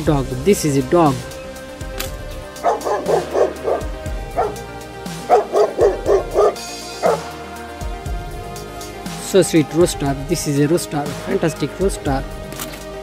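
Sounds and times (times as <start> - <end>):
background music: 0.0 - 13.0
dog barking: 2.6 - 7.4.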